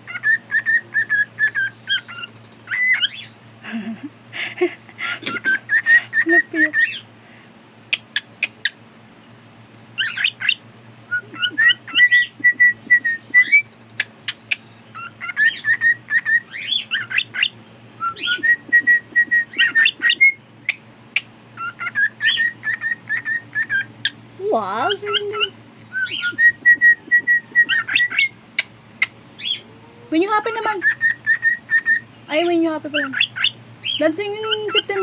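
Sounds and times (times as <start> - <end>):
bird chirps and clicks: 7.9 - 8.8, 11.9 - 14.7, 18.2 - 21.3, 26.1 - 29.2
cockatiel whistling: 10.0 - 13.7, 15.0 - 20.8, 21.6 - 24.2, 25.4 - 28.3, 30.8 - 32.1.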